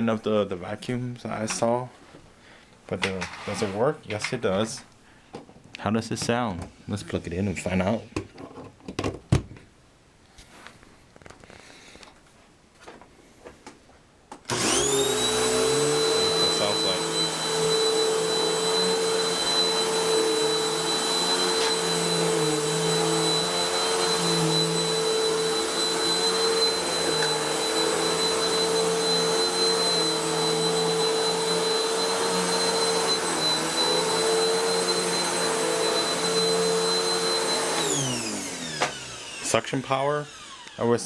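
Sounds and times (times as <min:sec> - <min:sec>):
vacuum motor spinning down: 0:14.5 - 0:40.8
vacuum cleaner running: 0:14.5 - 0:41.0.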